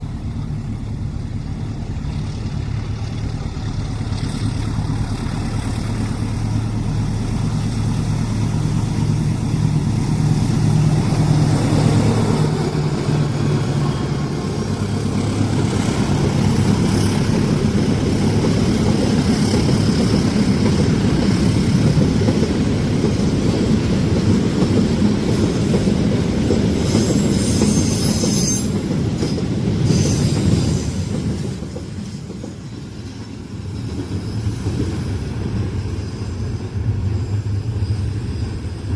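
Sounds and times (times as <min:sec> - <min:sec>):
diesel locomotive engine drone: 0:00.0 - 0:38.9
train cars rumbling past: 0:00.0 - 0:38.9
high-pitched wheel squeal: 0:26.9 - 0:28.9.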